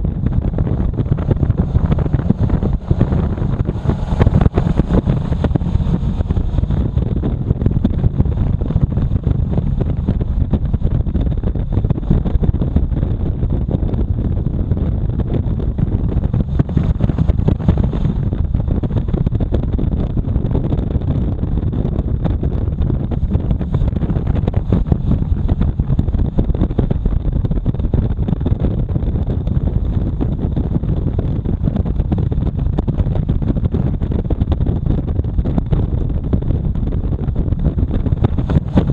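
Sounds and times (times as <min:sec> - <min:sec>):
motorcycle engine: 0:00.0 - 0:14.4
wind buffeting microphone: 0:00.0 - 0:38.9.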